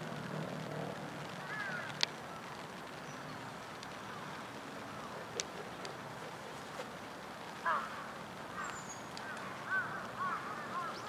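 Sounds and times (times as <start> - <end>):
faint wild bird chirps: 8.6 - 11.0.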